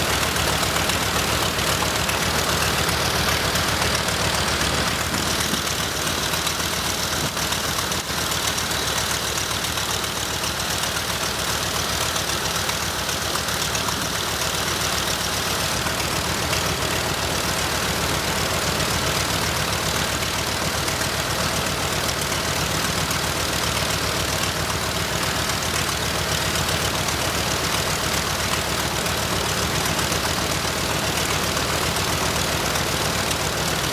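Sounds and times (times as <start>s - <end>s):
radial aircraft engine running: 0.0s - 33.9s.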